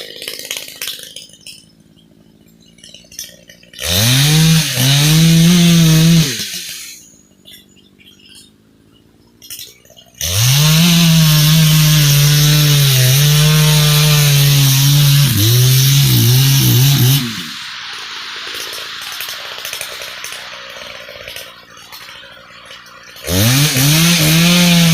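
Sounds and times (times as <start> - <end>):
chainsaw revving and idling: 3.7 - 7.1, 10.2 - 24.9.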